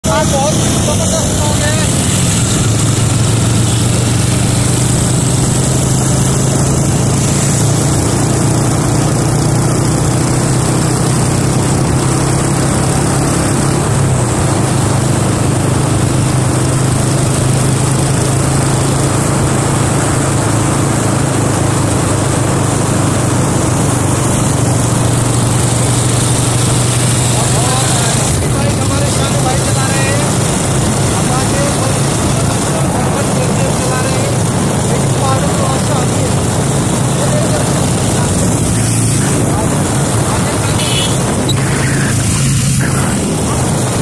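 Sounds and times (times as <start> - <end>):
rushing noise: 0.0 - 9.0, 23.1 - 44.0
motorcycle engine running: 0.0 - 44.0.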